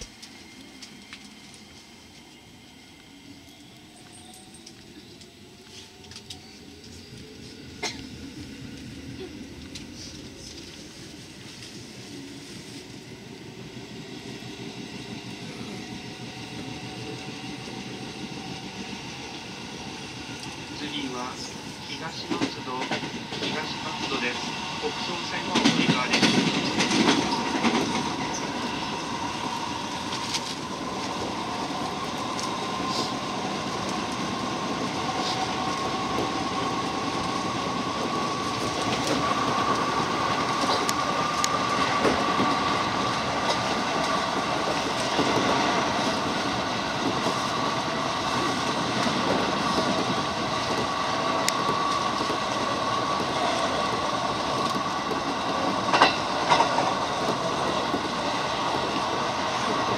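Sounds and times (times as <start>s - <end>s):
train wheels rumbling on rail: 0.0s - 59.9s
rail-joint clicks: 22.0s - 24.4s, 25.2s - 28.6s, 49.0s - 59.9s.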